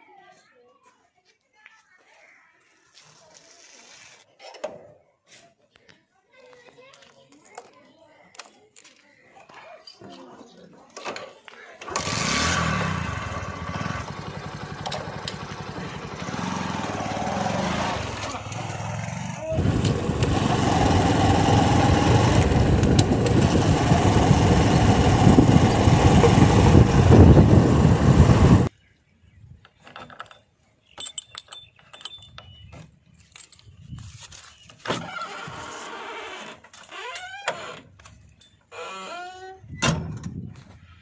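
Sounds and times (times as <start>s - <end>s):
diesel engine running: 11.9s - 28.7s.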